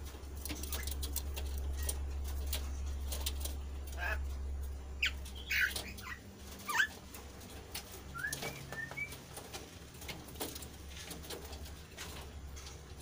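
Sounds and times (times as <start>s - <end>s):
bird chirping: 0.5s - 3.0s, 5.0s - 7.0s, 7.9s - 9.4s
bird whistled notes: 8.1s - 9.2s.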